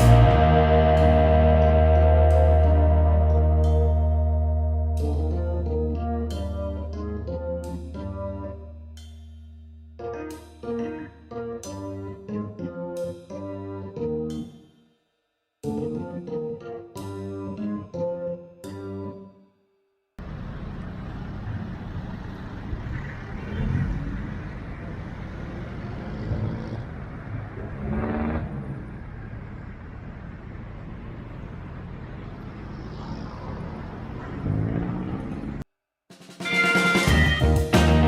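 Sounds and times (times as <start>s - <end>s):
engines accelerating: 0.0s - 5.3s, 20.2s - 35.7s
vehicles passing: 0.0s - 7.4s, 20.2s - 35.7s.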